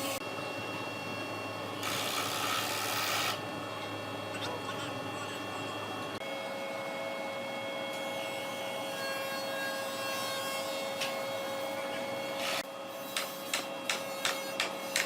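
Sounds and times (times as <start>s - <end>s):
power tool humming: 1.8s - 3.4s, 12.3s - 12.7s.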